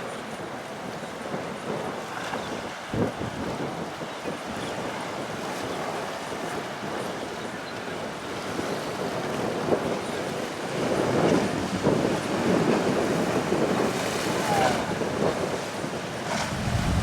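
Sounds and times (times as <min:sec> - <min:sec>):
choppy water churning: 0:09.0 - 0:17.0
wind buffeting microphone: 0:11.1 - 0:17.0.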